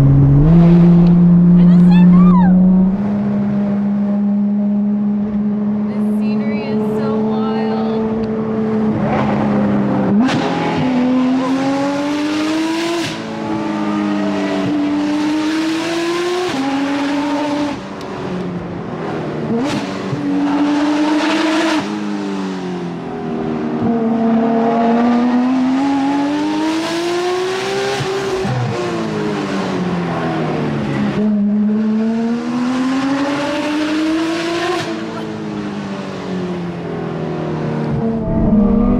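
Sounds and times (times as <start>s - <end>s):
sports car engine revving: 0.0s - 6.8s, 37.2s - 38.9s.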